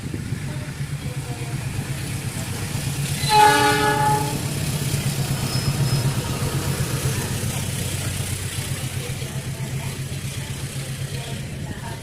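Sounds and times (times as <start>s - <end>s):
low engine rumble: 0.0s - 12.0s
locomotive horn blast: 3.2s - 4.5s.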